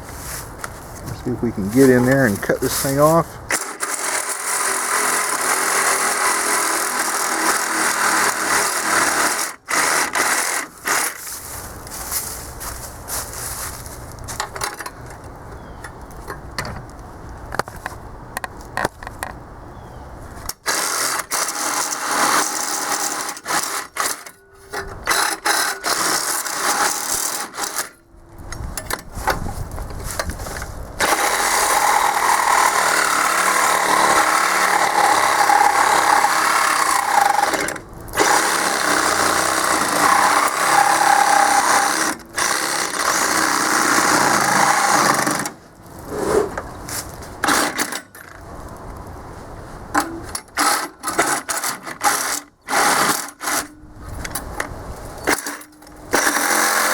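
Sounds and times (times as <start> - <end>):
reciprocating saw cutting steel: 1.8 - 11.3, 31.0 - 46.5, 55.2 - 56.9.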